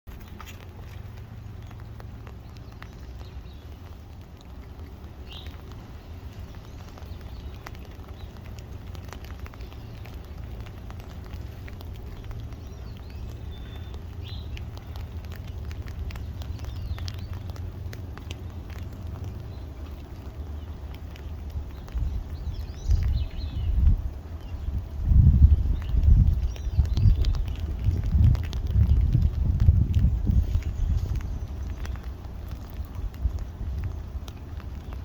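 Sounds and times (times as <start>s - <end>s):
drip clicks: 0.1s - 35.0s
light rain pattering: 0.1s - 35.0s.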